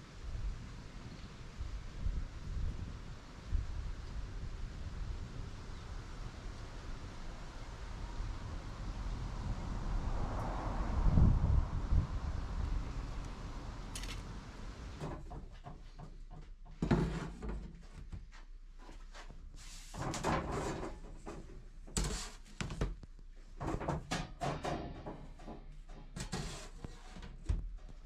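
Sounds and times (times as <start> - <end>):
objects knocking and clattering: 23.6 - 26.6.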